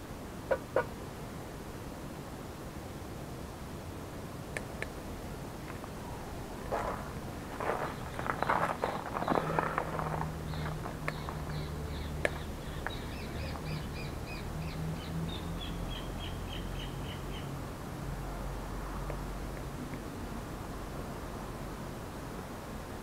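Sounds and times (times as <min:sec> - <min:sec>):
low steady hum: 0:00.0 - 0:23.0
rustling and clattering: 0:06.7 - 0:11.4.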